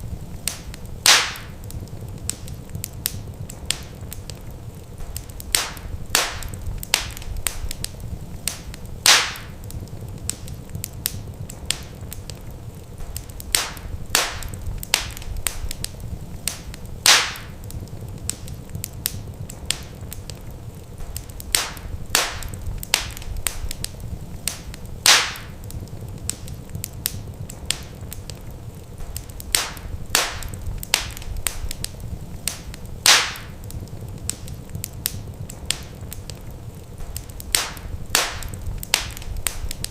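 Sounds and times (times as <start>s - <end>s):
wood fire crackling: 0.0s - 39.9s
loud fire pop: 0.5s - 1.6s, 5.0s - 7.9s, 8.5s - 9.6s, 13.0s - 15.9s, 16.5s - 17.6s, 21.0s - 23.9s, 24.5s - 25.6s, 29.0s - 31.9s, 32.5s - 33.6s, 37.0s - 39.9s.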